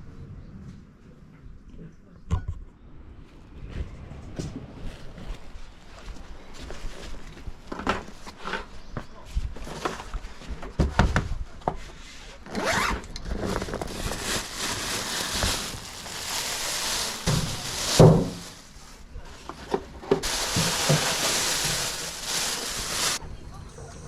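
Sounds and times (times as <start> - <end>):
gear rubbing and scraping: 12.5 - 18.0
steady hiss: 14.4 - 19.1, 20.2 - 23.2.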